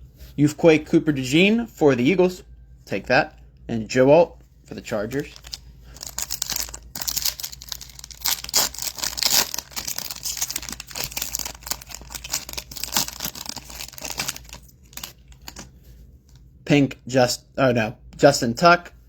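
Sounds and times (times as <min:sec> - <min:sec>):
wrapper crinkling and tearing: 0:05.0 - 0:15.7.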